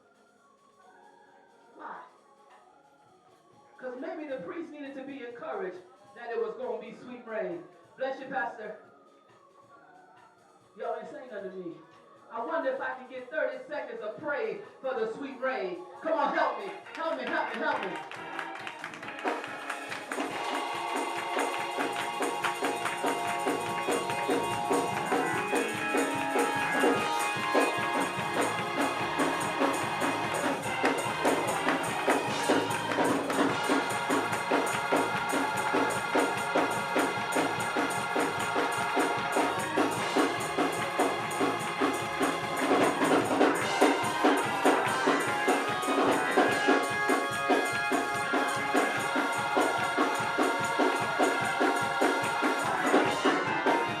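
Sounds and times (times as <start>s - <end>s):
gospel organ music: 1.5s - 9.4s, 10.3s - 54.0s
drums: 18.9s - 54.0s
tambourine: 19.4s - 54.0s.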